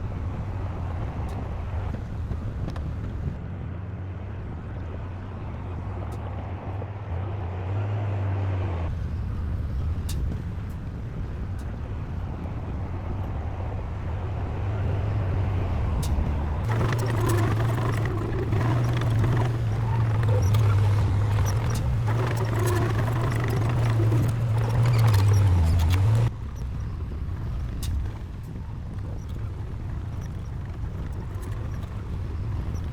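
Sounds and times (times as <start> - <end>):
heavy machinery diesel engine: 14.8 - 32.9.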